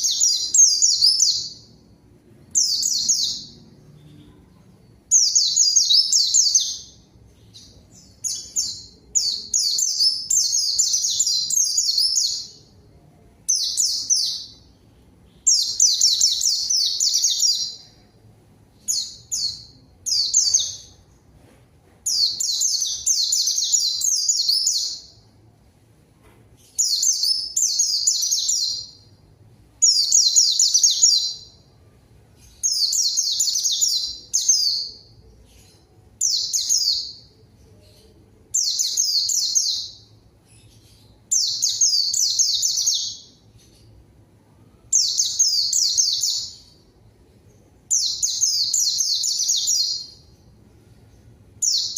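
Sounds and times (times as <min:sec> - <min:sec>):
white-eye twittering song: 0:00.0 - 0:01.8, 0:02.5 - 0:12.7, 0:29.8 - 0:43.9.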